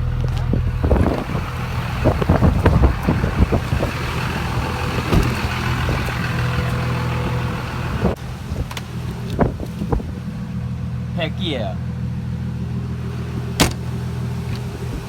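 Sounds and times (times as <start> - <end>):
knocks and rattles: 0.0 - 8.0
vehicle engine and road hum: 0.0 - 15.0.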